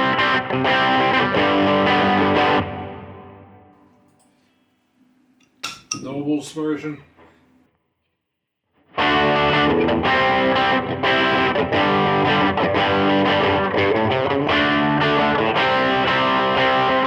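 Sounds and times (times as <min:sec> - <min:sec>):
distorted electric guitar: 0:00.0 - 0:03.2, 0:08.9 - 0:17.0.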